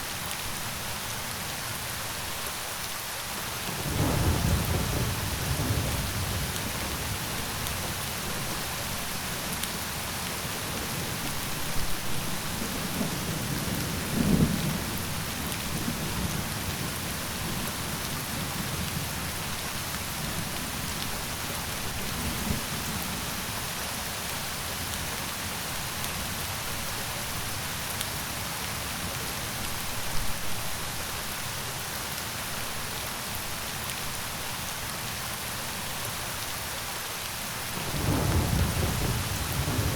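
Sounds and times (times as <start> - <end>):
heavy rain: 0.0 - 39.9
low rolls of thunder: 3.8 - 8.6, 12.6 - 19.0, 37.8 - 39.9.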